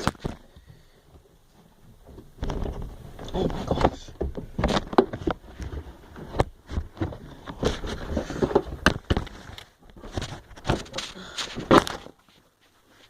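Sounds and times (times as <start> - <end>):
camera handling knocks and rustling: 3.6 - 12.2.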